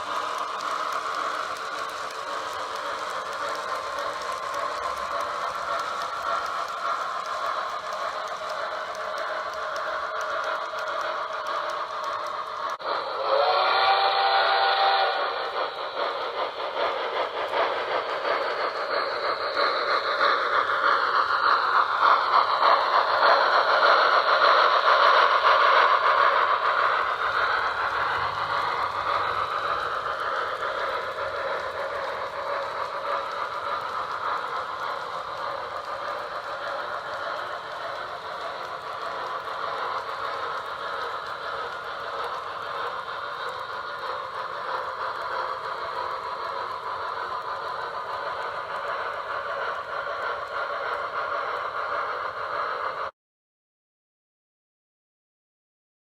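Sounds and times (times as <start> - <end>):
locomotive wheels on track: 0.0 - 53.1
model locomotive whistle: 12.6 - 17.0.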